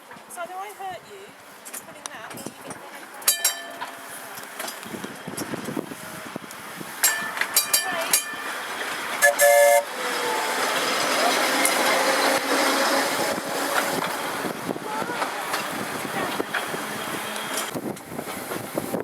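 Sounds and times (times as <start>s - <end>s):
tram running noise with whine: 1.3s - 19.0s
tram bell ringing: 3.2s - 4.8s, 6.9s - 17.8s
tram horn toot: 7.1s - 14.1s, 16.2s - 17.8s.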